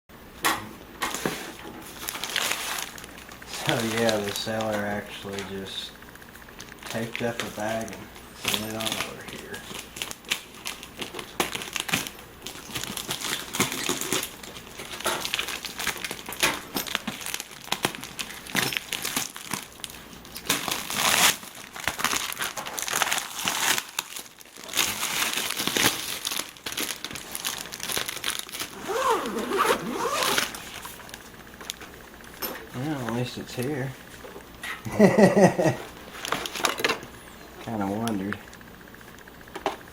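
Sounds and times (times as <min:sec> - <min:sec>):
packaging crinkling and tearing: 0:01.1 - 0:05.6, 0:06.6 - 0:32.0, 0:35.9 - 0:37.0.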